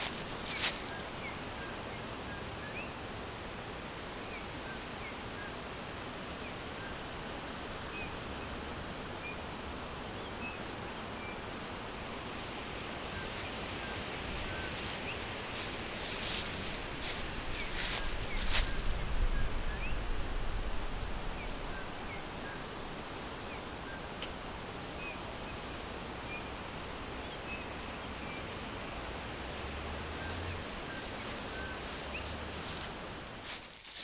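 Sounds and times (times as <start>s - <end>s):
brief rustles: 0.0s - 1.2s, 12.4s - 19.0s
steady forest hiss: 0.0s - 34.0s.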